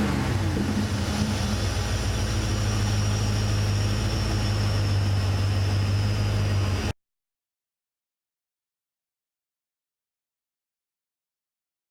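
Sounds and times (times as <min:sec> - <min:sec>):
car engine idling: 0:00.0 - 0:06.9.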